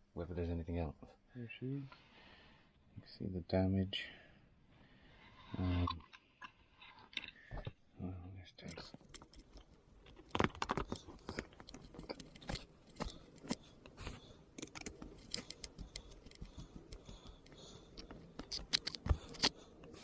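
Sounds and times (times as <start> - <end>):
plastic parts clicking and scraping: 5.5 - 7.8, 8.6 - 20.0.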